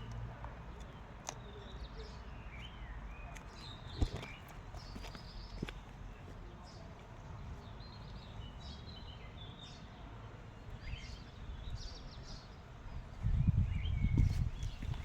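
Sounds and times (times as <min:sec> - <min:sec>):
birds chirping: 0:00.7 - 0:09.9.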